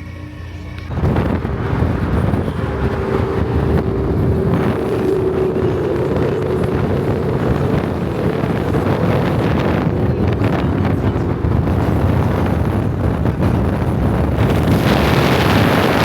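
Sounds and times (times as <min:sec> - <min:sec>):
car driving: 0:00.8 - 0:16.0
wind buffeting microphone: 0:00.9 - 0:16.0.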